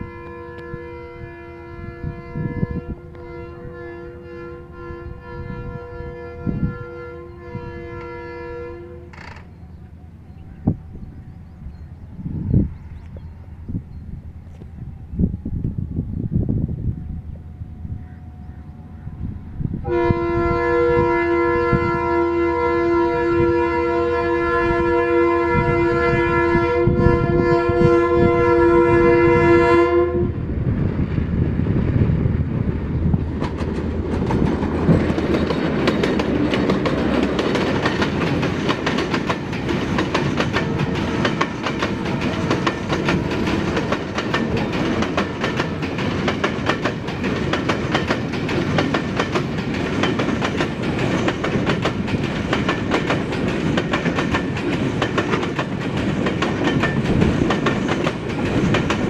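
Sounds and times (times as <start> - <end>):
locomotive horn: 0.0 - 9.4, 19.8 - 30.4
locomotives passing: 30.2 - 59.0
freight wagons rumbling: 30.5 - 59.0
wheels clacking over rail joints: 32.6 - 59.0.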